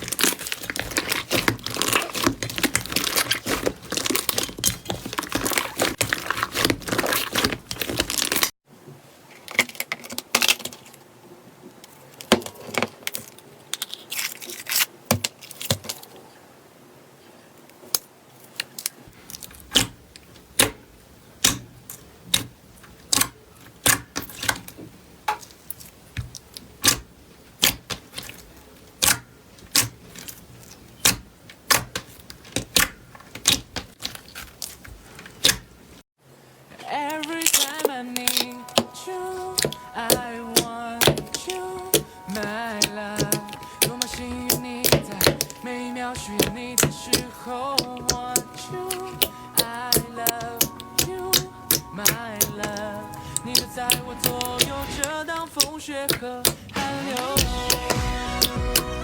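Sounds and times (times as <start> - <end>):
slime crackling: 0.0 - 8.6, 36.8 - 59.0.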